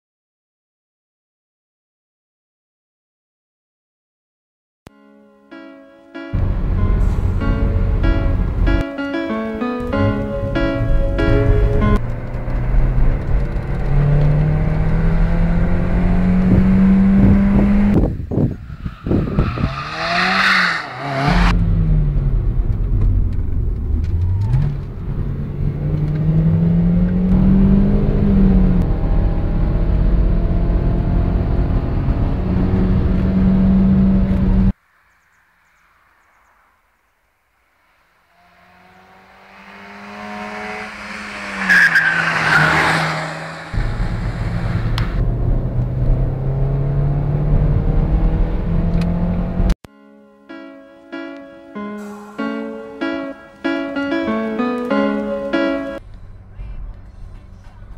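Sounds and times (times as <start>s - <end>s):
car engine revving: 6.4s - 34.7s, 37.9s - 49.8s
car engine approaching: 6.4s - 36.8s, 37.6s - 49.8s, 51.8s - 57.9s
high squeal: 18.5s - 21.5s, 38.4s - 45.2s.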